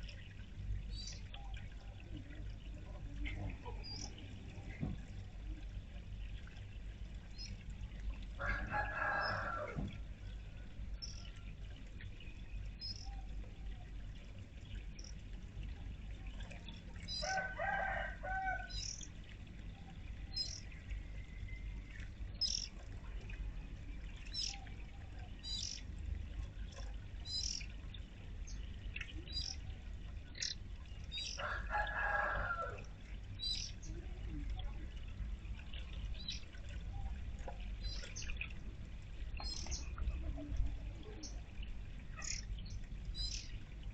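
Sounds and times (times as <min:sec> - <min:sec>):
small birds chirping: 0:00.9 - 0:01.6, 0:03.7 - 0:04.2, 0:07.3 - 0:07.6, 0:11.0 - 0:11.3, 0:12.5 - 0:13.3, 0:15.0 - 0:15.2, 0:18.7 - 0:19.1, 0:20.3 - 0:22.7, 0:24.2 - 0:25.9, 0:26.7 - 0:27.8, 0:28.5 - 0:31.4, 0:33.4 - 0:34.7, 0:36.2 - 0:37.1, 0:37.8 - 0:38.5, 0:39.4 - 0:40.4, 0:42.1 - 0:43.6
rooster crowing: 0:08.4 - 0:09.8, 0:17.2 - 0:18.8, 0:31.4 - 0:32.8.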